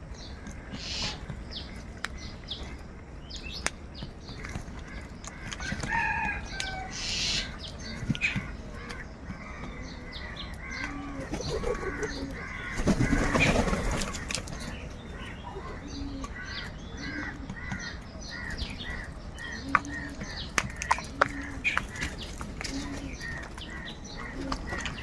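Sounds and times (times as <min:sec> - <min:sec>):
crows cawing: 0:00.4 - 0:01.3, 0:04.8 - 0:25.0
wings flapping: 0:11.2 - 0:14.8.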